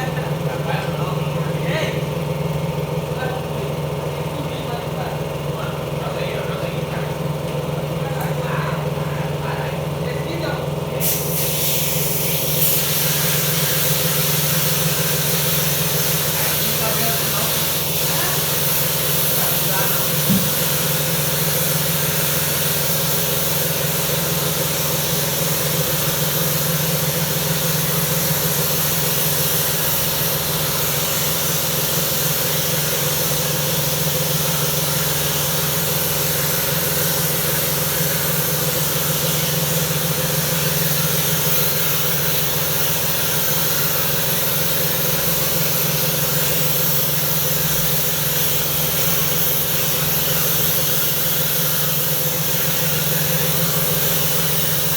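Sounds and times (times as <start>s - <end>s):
pressure washer motor hum: 0.0s - 54.9s
water spray hissing: 11.0s - 54.9s.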